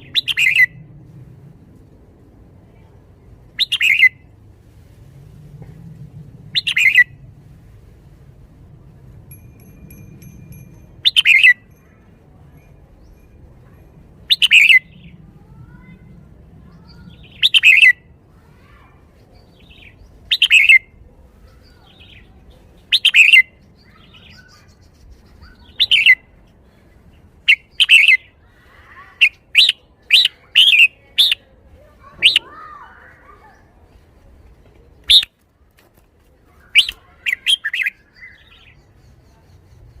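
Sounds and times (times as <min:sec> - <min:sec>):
bulbul singing: 0:09.3 - 0:15.2, 0:16.8 - 0:18.1, 0:19.3 - 0:26.3, 0:27.4 - 0:28.3, 0:35.0 - 0:35.3, 0:36.8 - 0:40.0.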